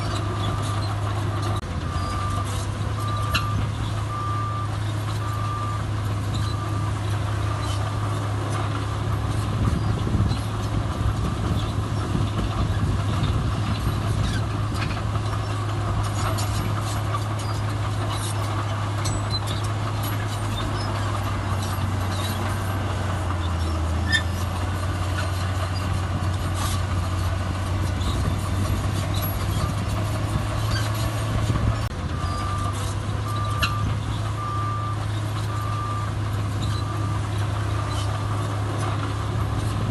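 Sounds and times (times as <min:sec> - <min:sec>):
diesel machinery running: 0:00.0 - 0:39.9
reversing alarm beeping: 0:01.9 - 0:06.9, 0:32.2 - 0:36.1.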